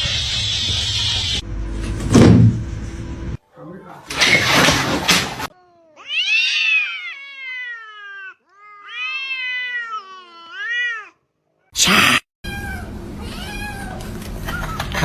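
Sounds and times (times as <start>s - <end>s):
cat meowing: 5.5s - 11.2s, 12.5s - 14.0s.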